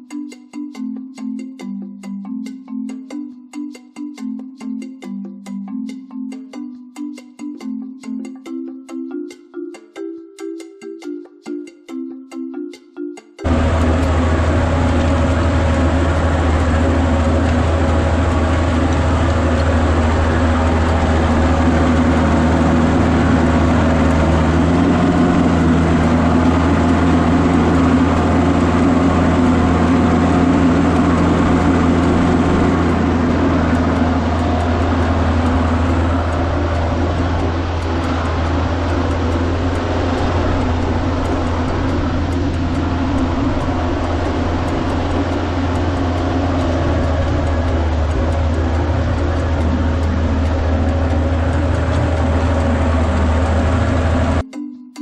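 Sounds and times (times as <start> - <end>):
tractor diesel engine running: 13.4 - 54.4.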